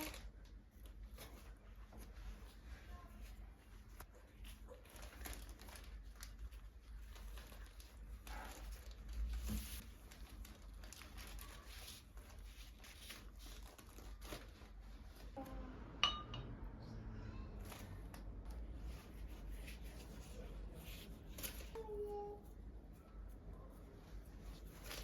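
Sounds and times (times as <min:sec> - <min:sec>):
faint rustling and crinkling: 0:00.0 - 0:15.6, 0:17.5 - 0:25.0.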